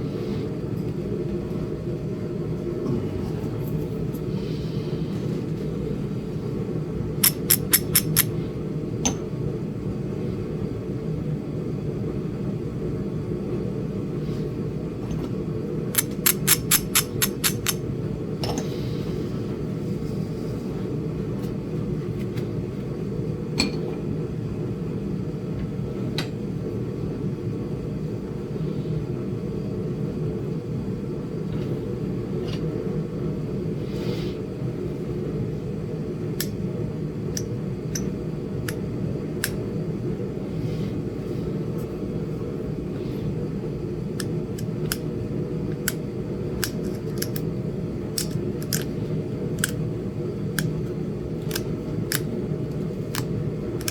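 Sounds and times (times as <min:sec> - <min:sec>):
space heater hum: 0:00.0 - 0:53.9
stone knapping clicks: 0:07.2 - 0:08.3, 0:16.0 - 0:17.8, 0:45.7 - 0:46.0, 0:46.6 - 0:47.5, 0:48.2 - 0:48.9, 0:49.6 - 0:49.8, 0:51.4 - 0:53.9.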